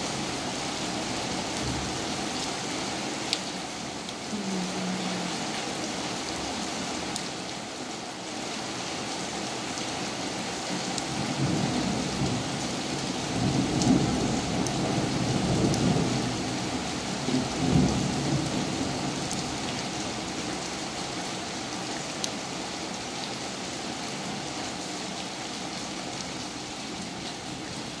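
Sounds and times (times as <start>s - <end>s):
heavy rain pouring: 0.0s - 28.0s
rumble of thunder: 11.2s - 19.2s.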